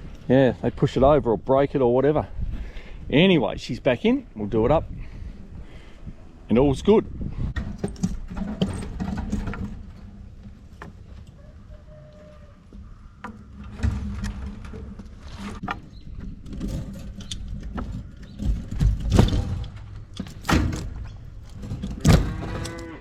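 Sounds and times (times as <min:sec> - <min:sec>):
wind on microphone: 0:02.2 - 0:07.8
knocks and clanks: 0:07.5 - 0:11.3, 0:12.7 - 0:22.9.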